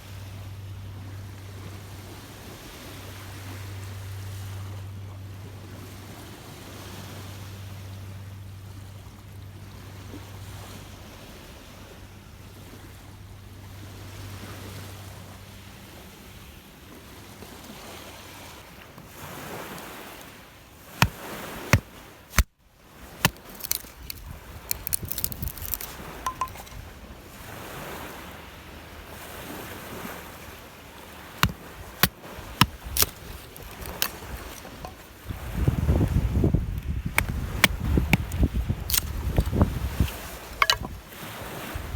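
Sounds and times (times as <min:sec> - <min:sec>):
waves washing onto shore: 0:16.9 - 0:41.9
strong wind: 0:32.7 - 0:41.9
sharp clicks and knocks: 0:40.6 - 0:41.0.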